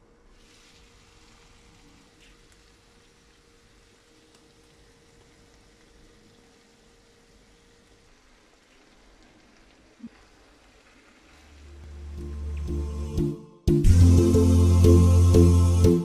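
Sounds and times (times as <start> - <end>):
vegetables sizzling in a pan: 0.3 - 12.6.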